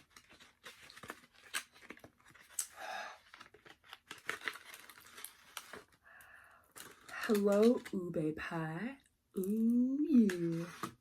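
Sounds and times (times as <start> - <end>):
paper packaging crinkling and tearing: 0.0 - 6.1, 6.7 - 8.1, 10.1 - 11.0.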